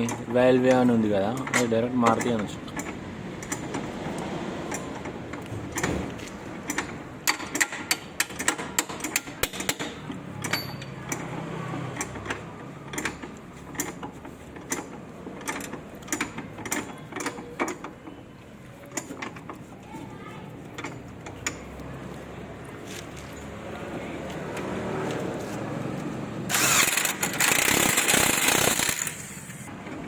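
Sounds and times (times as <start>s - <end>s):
metallic clicks and clatter of tools: 0.0s - 18.2s, 26.5s - 30.0s.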